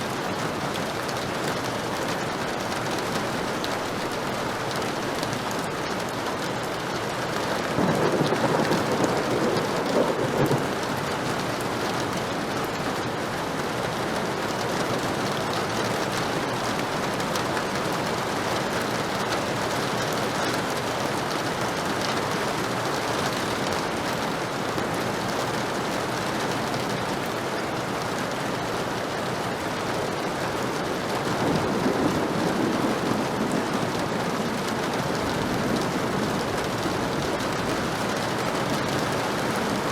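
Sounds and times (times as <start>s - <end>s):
heavy rain: 0.0s - 39.9s
thunder rolling: 7.7s - 11.1s, 31.3s - 39.9s.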